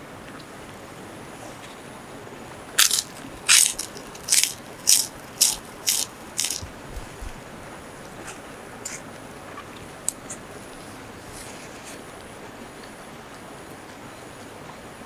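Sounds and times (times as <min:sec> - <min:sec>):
crunchy food being chewed: 0:02.8 - 0:06.8.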